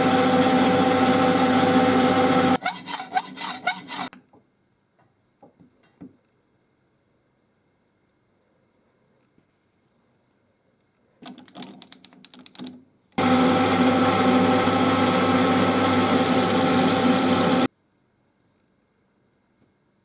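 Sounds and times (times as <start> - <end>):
electric power tool motor: 0.0 - 4.1, 13.2 - 17.7.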